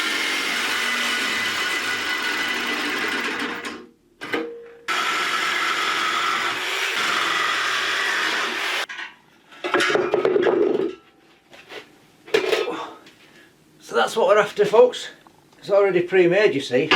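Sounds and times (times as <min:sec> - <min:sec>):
power tool cutting metal: 0:00.0 - 0:03.8, 0:04.9 - 0:08.9
tool humming: 0:00.0 - 0:03.8, 0:04.9 - 0:08.9.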